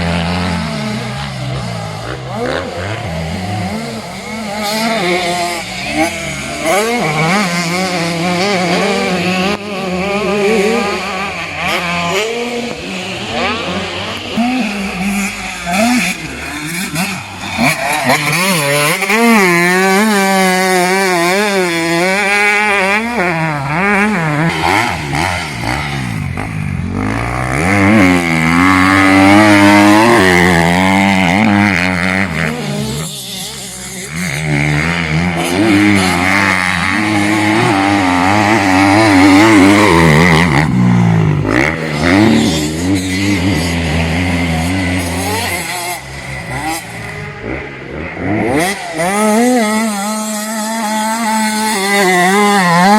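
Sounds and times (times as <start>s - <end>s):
motocross bike engines revving: 0.0s - 52.9s.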